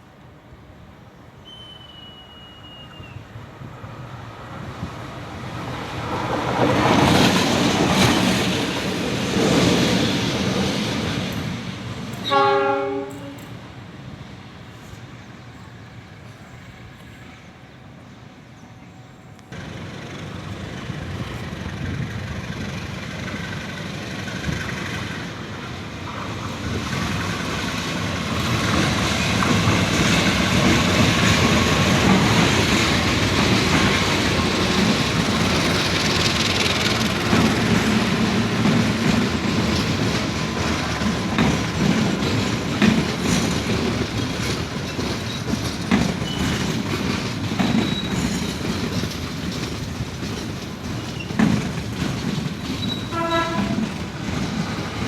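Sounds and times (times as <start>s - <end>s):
train rushing on rails: 0.0s - 55.0s
train horn blast: 12.2s - 13.5s, 53.1s - 54.0s.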